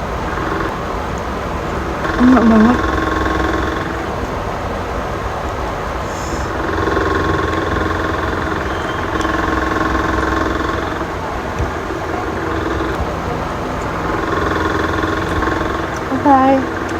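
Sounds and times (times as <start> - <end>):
faint humming tones: 0.0 - 16.9
low mechanical drone: 0.0 - 16.9.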